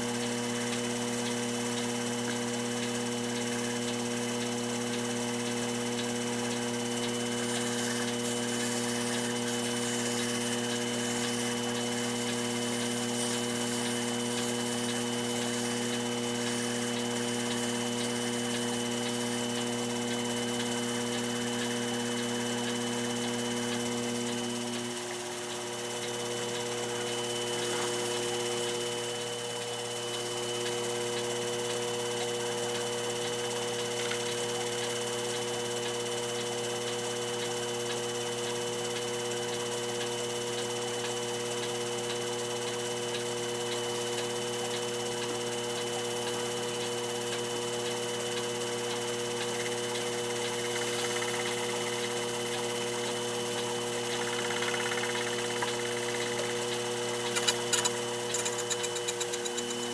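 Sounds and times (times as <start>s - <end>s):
small electric motor humming: 0.0s - 59.9s.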